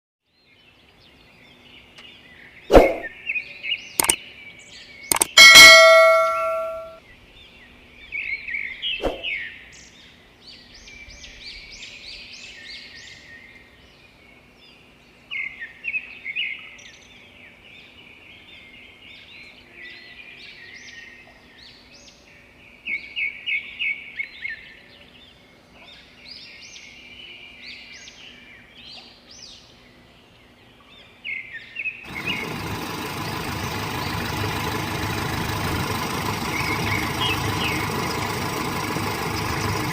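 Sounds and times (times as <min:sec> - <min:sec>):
birds chirping: 0:00.7 - 0:39.9
engine-like drone: 0:32.1 - 0:39.9.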